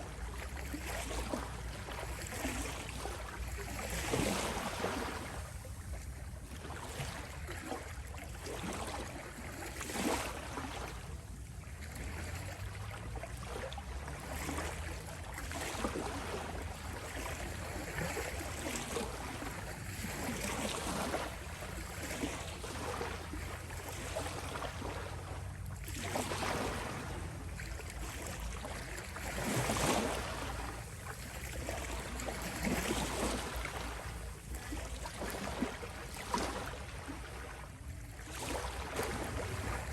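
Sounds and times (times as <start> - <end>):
ocean waves washing onto shore: 8.0 - 39.9.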